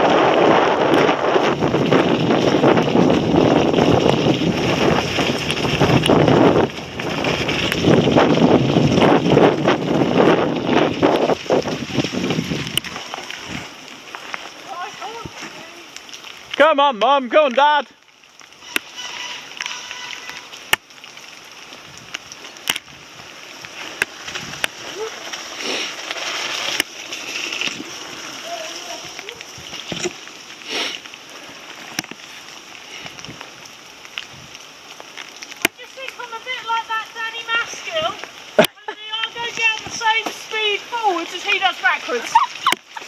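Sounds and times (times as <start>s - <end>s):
wind buffeting microphone: 0.0s - 13.8s
rain hissing: 0.0s - 43.0s.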